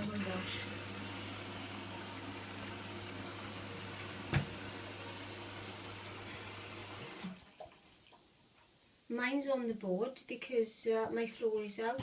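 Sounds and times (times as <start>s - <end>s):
washing machine filling with water: 0.0s - 8.2s.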